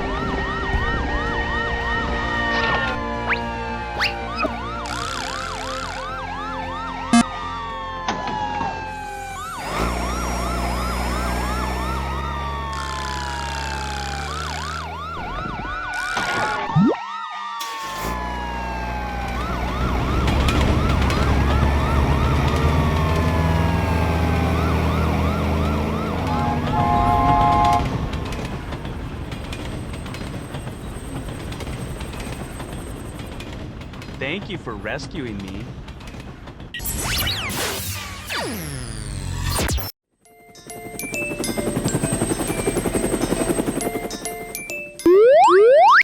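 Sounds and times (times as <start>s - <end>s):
low rumbling soundtrack: 0.0s - 9.4s
cartoon siren wails: 0.0s - 27.9s, 45.0s - 46.0s.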